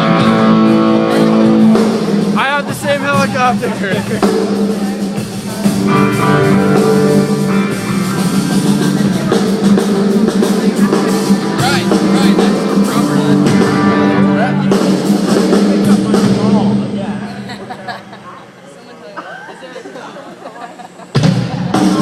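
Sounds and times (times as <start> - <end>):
drum kit hits: 0.0 - 17.2
guitar chords: 0.0 - 18.6.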